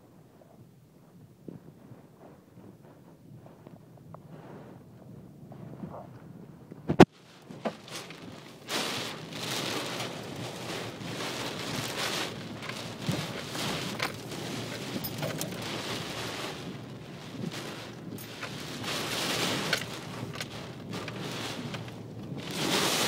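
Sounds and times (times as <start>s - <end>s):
heavy rain hissing: 8.6s - 23.0s.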